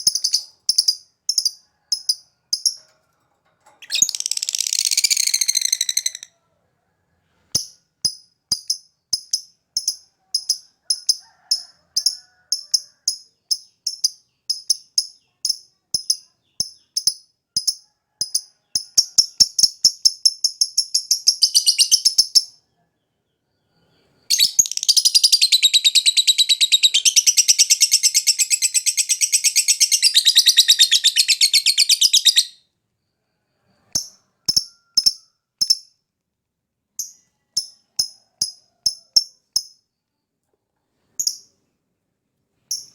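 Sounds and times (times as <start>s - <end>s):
lovebird chirping: 0.0s - 2.8s, 3.8s - 6.4s, 18.8s - 32.6s
lovebird rapid trill: 0.0s - 2.8s, 3.8s - 6.3s, 19.2s - 22.4s, 24.3s - 32.6s.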